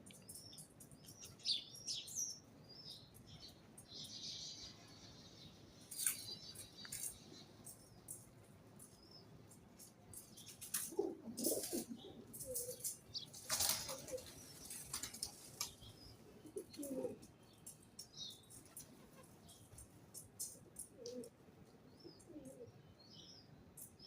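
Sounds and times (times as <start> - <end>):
high ticks and chirps: 0.0 - 11.1, 16.8 - 21.4
wings flapping: 10.7 - 15.8
pigeons cooing: 10.7 - 17.3, 20.4 - 21.4, 22.0 - 22.8.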